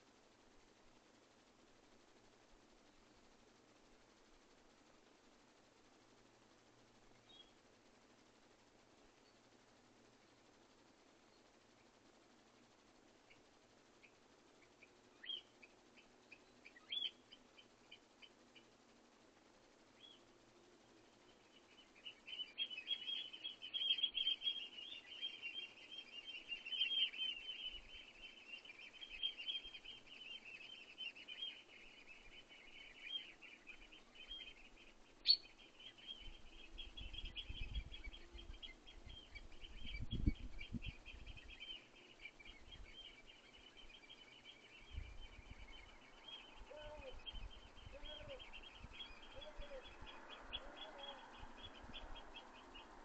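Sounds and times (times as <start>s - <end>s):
songbirds twittering: 0.0s - 53.0s
wood pigeon cooing: 49.2s - 51.4s.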